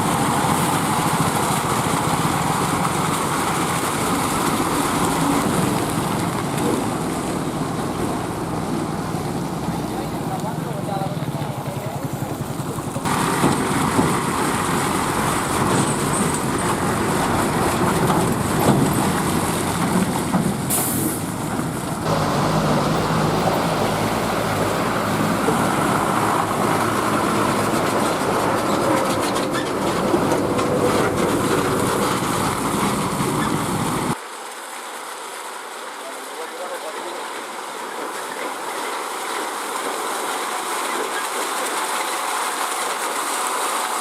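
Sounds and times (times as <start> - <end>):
heavy trucks engine and road noise: 0.0 - 34.2.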